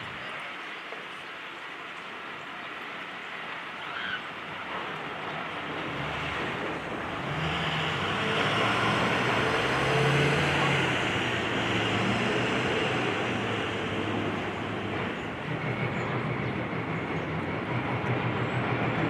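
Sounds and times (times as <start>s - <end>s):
heavy engine running under load: 4.6s - 19.0s.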